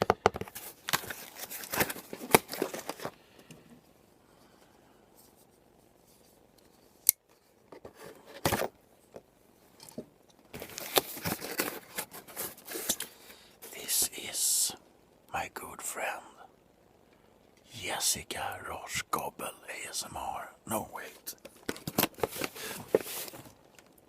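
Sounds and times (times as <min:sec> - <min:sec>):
packaging rustling and scraping: 0:00.4 - 0:03.2, 0:10.5 - 0:13.2, 0:21.4 - 0:24.0.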